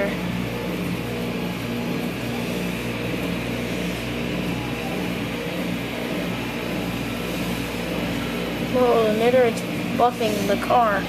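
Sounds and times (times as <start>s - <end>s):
car wash machinery: 0.0s - 11.0s.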